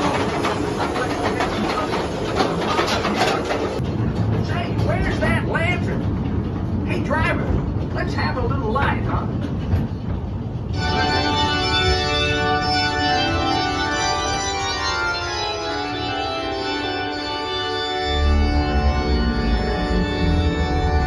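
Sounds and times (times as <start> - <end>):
organ playing sustained chords: 10.7 - 21.0.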